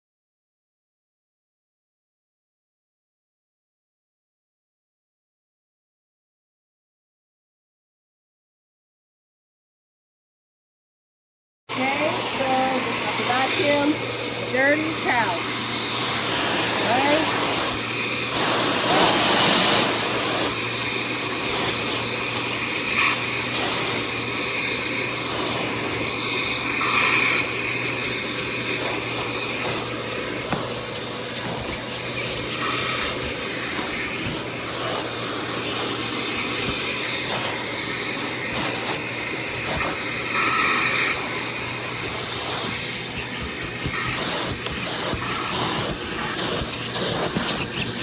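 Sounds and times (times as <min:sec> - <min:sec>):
vacuum cleaner motor whine: 0:11.7 - 0:48.0.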